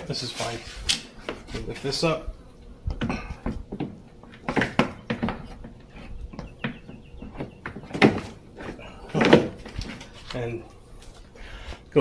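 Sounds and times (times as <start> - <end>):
plastic knocks and clatter: 2.9 - 10.1.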